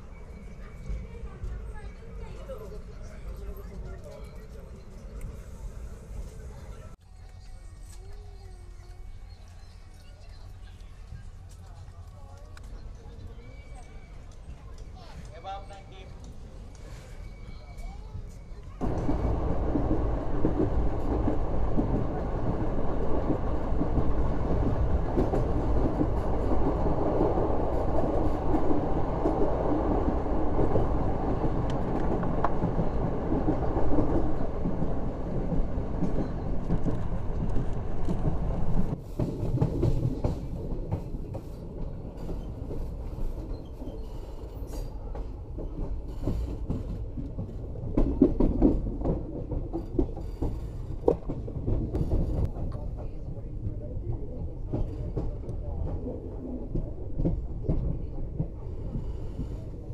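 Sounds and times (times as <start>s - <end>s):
train wheels clattering on rails: 14.2s - 59.9s.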